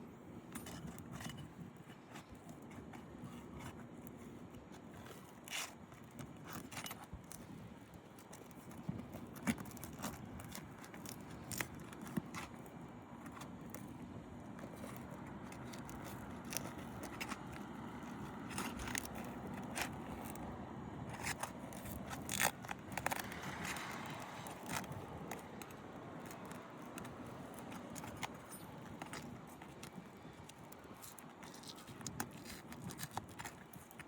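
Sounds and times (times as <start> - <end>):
metal tool clicking and scraping: 14.6 - 20.4.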